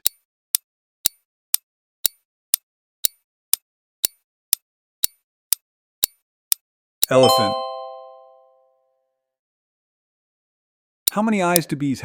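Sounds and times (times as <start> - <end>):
countdown timer ticks: 7.0 - 8.4.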